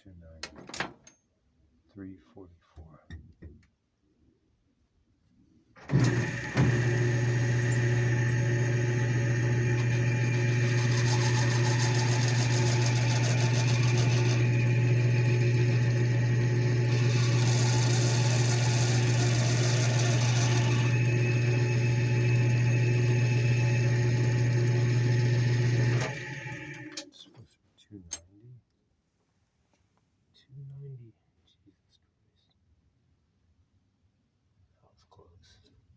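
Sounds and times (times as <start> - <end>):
lathe running with low hum: 5.9 - 27.0.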